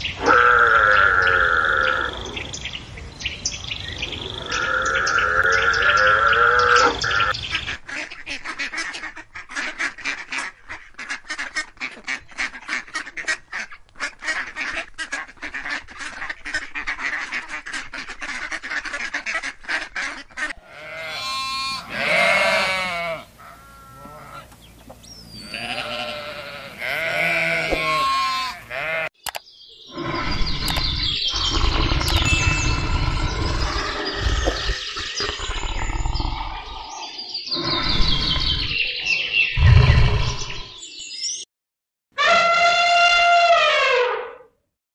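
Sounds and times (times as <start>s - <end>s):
sheep bleating: 20.6s - 24.5s, 25.4s - 29.1s
loud low rumbling: 39.6s - 40.6s.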